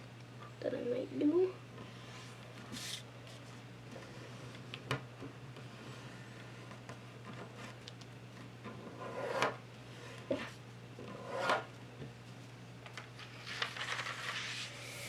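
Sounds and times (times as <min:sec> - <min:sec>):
paper rustling: 0:12.9 - 0:15.0
paper rubbing along a fold: 0:13.4 - 0:15.0.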